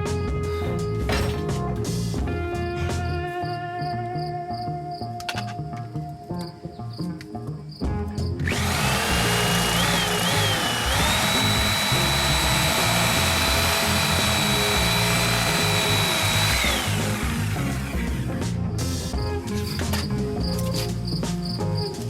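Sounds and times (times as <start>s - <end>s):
background music: 0.0s - 22.0s
power tool motor whining: 8.4s - 18.2s.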